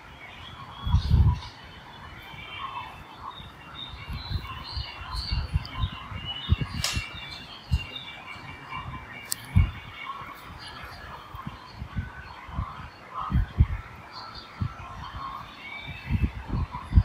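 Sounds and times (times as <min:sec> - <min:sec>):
small birds chirping: 0:00.0 - 0:17.0
sharp click: 0:06.8 - 0:07.2.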